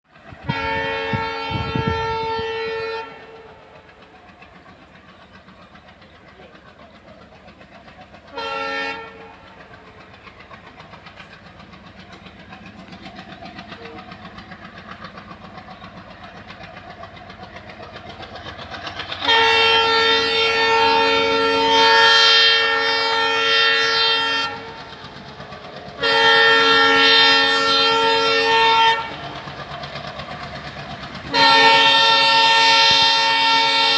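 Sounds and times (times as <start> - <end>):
diesel engine chugging: 0.0 - 33.9
train wheels clicking on rails: 0.1 - 33.9
diesel locomotive horn: 0.3 - 5.0, 8.1 - 10.1, 19.0 - 33.9.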